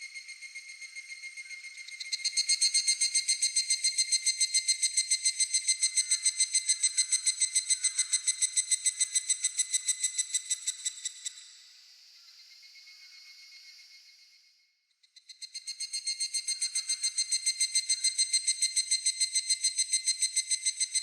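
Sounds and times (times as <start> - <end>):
cicada pulsed ringing call: 0.0 - 11.6, 15.2 - 21.0.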